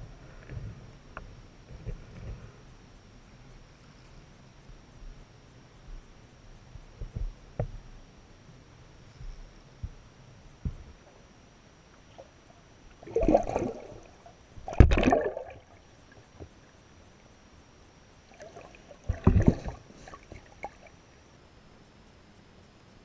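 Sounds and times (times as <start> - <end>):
water splashing: 13.0 - 16.2, 18.3 - 21.0.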